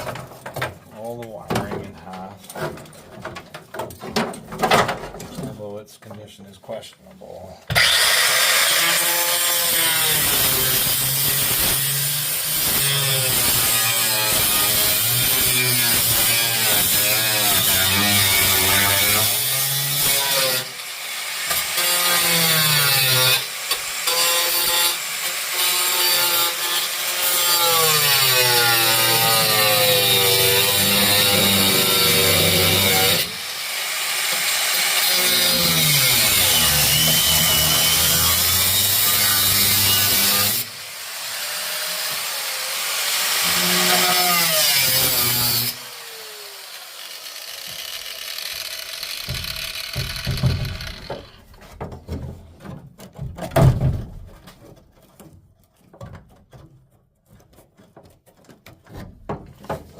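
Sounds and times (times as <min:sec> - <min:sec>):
power tool cutting sheet metal: 0:07.7 - 0:51.5.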